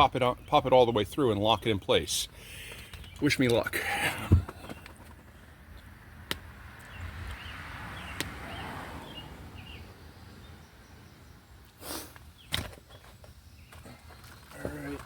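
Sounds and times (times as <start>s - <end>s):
bird chirps: 6.8s - 14.5s.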